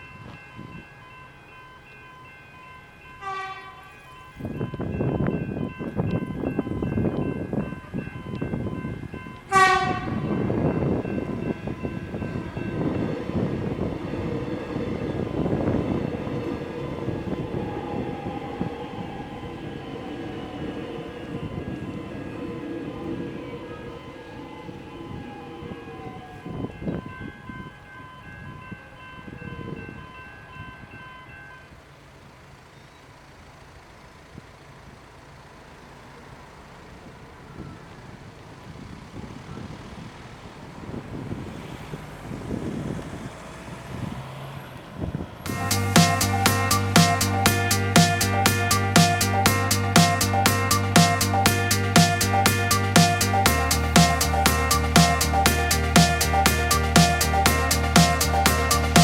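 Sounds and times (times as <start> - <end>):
crossing electronic bells ringing: 0.0 - 33.3, 45.5 - 59.0
train rumbling past: 0.0 - 59.0
train horn blast: 3.2 - 4.0, 9.5 - 14.1.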